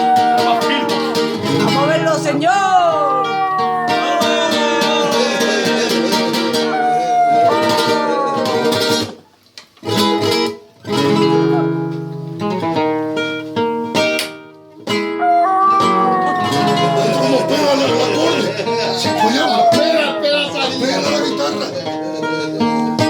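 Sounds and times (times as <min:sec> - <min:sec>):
person singing flamenco: 0:00.0 - 0:09.2
acoustic flamenco guitar: 0:00.0 - 0:23.0.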